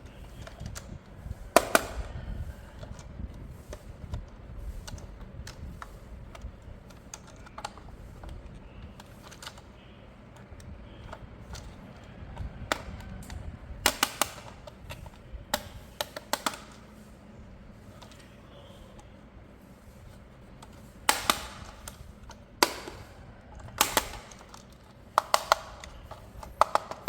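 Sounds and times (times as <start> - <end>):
plastic toy packaging clicks: 4.8 - 17.0, 20.6 - 27.0.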